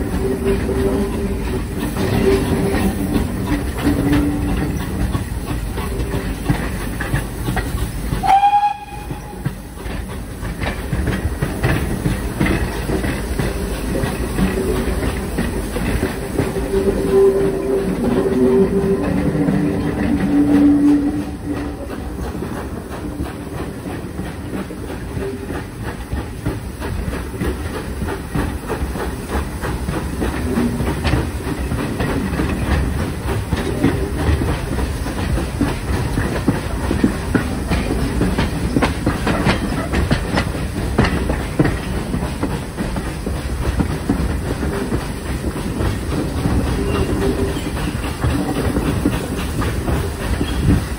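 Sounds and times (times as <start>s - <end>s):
steam train running: 0.0s - 50.9s
wheels clicking over rail joints: 0.0s - 50.9s
train whistle: 8.2s - 9.5s, 16.5s - 22.0s.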